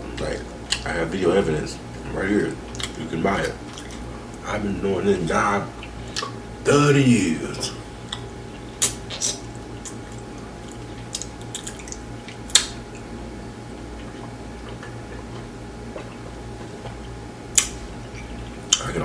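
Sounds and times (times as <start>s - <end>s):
person chewing food: 0.1s - 0.8s, 2.6s - 4.4s, 7.9s - 18.9s
wet clicks and smacks: 0.7s - 0.9s, 2.7s - 4.0s, 8.1s - 13.1s, 14.0s - 18.9s.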